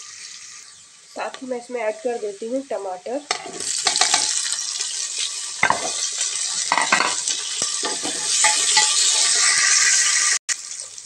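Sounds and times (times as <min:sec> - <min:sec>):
onions sizzling in hot oil: 0:00.0 - 0:11.0
wooden spoon scraping a pot: 0:05.2 - 0:09.2.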